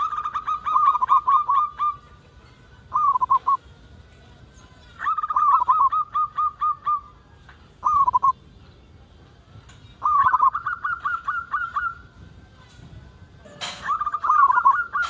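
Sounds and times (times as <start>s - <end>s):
dove cooing: 0.0s - 2.2s, 2.9s - 3.6s, 5.0s - 7.2s, 7.8s - 8.4s, 10.0s - 12.1s, 13.6s - 15.0s.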